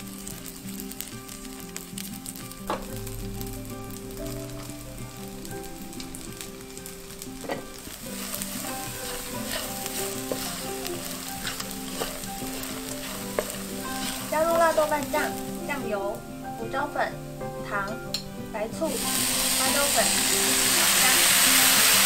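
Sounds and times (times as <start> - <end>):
food sizzling in a pan: 0.0 - 22.0
wooden spatula scraping a pan: 7.4 - 15.8.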